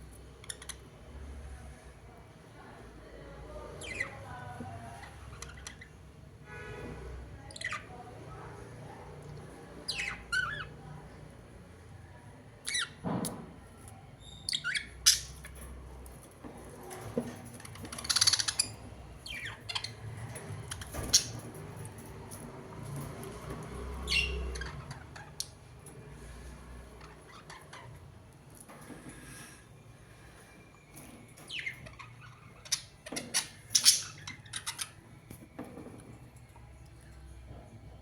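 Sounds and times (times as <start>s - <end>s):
birds squawking: 24.0s - 25.4s.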